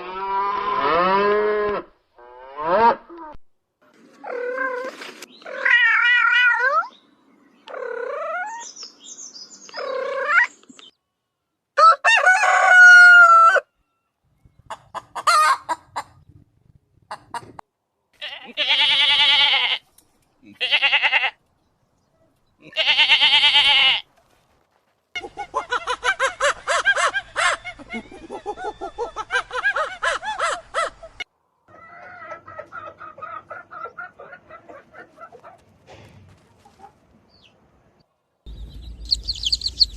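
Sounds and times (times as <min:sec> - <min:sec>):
rooster crowing: 0:11.8 - 0:13.7
hen clucking: 0:14.6 - 0:16.3, 0:17.1 - 0:17.6, 0:25.2 - 0:35.6, 0:38.5 - 0:39.9.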